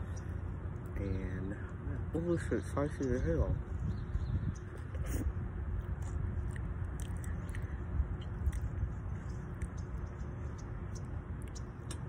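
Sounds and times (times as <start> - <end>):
person chewing: 4.7 - 9.8, 11.0 - 12.0
wet mouth clicks: 4.8 - 8.8, 10.9 - 12.0.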